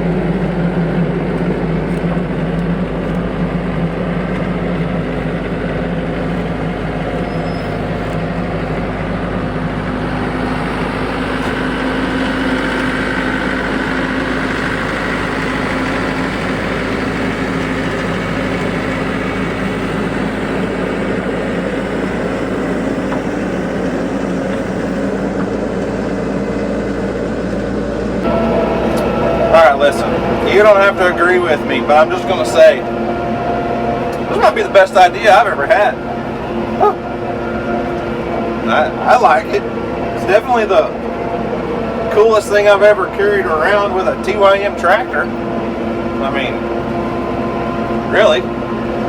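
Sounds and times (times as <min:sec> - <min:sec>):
tractor diesel engine running: 0:00.0 - 0:49.0.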